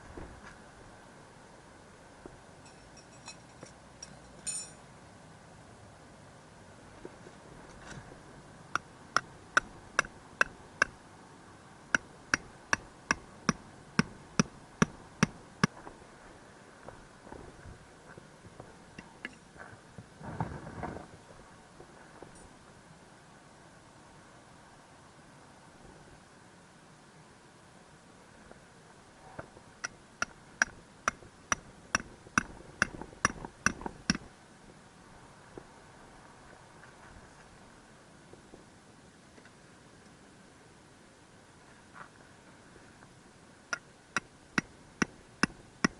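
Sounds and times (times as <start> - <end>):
hammer striking tent peg: 12.3 - 15.4.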